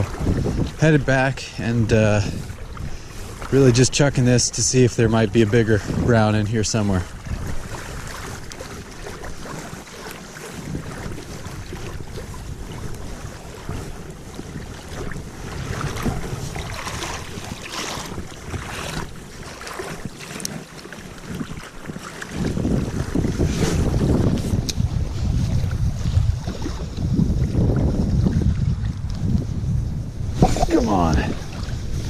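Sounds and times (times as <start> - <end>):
creek water flowing: 0.0 - 27.7, 30.2 - 32.0
wind buffeting microphone: 0.0 - 32.0.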